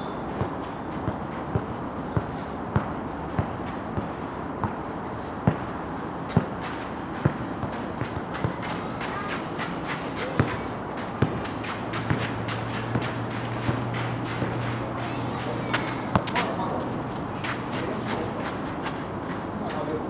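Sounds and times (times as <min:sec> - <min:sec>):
steady background noise: 0:00.0 - 0:20.0
balls bouncing on a court: 0:00.4 - 0:04.8, 0:05.4 - 0:19.9
light footfalls: 0:09.9 - 0:19.9.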